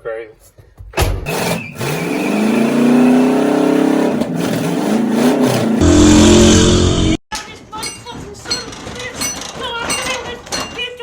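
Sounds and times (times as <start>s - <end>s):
car engine revving hard: 1.3s - 7.2s.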